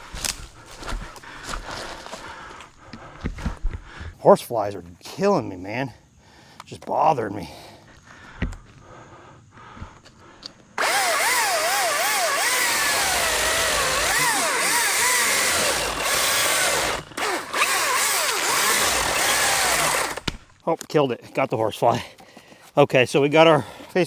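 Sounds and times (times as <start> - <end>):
chainsaw cutting wood: 10.8 - 20.5.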